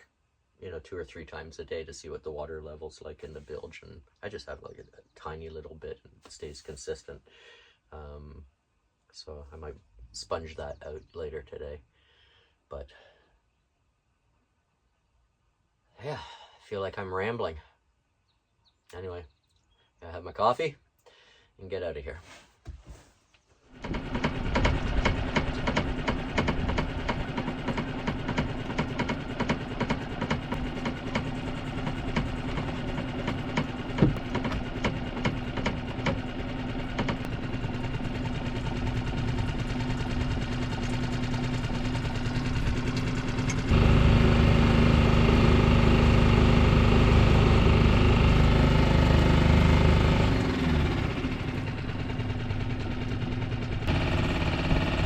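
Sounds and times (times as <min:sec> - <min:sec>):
boat engine running: 0:23.8 - 0:55.0.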